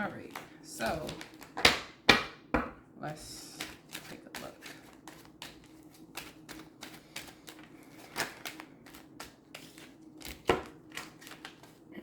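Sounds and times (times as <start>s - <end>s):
cards being shuffled: 3.4s - 11.9s.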